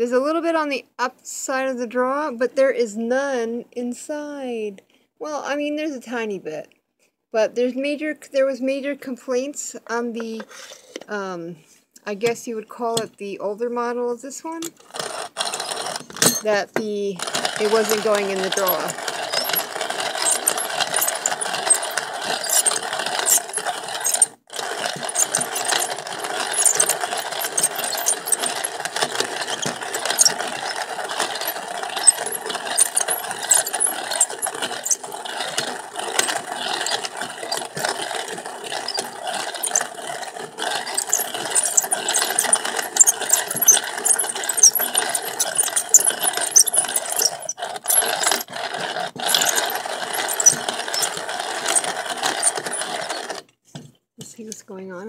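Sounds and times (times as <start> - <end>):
coffee grinder crunching beans: 14.6 - 53.5.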